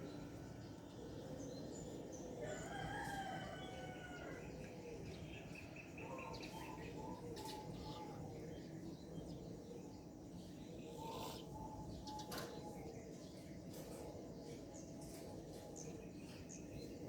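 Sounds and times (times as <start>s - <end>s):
rooster crowing: 2.4s - 4.4s
small birds chirping: 5.1s - 17.0s.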